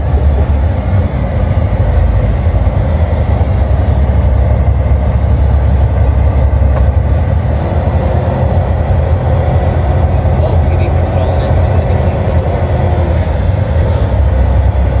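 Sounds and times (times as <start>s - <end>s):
truck engine and road noise: 0.0s - 15.0s.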